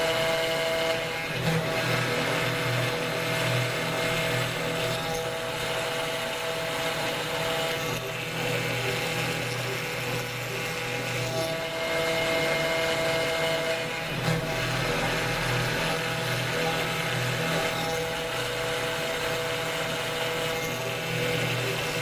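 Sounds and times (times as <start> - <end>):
rough cutting noise: 0.0 - 22.0
router spindle whine: 0.0 - 22.0.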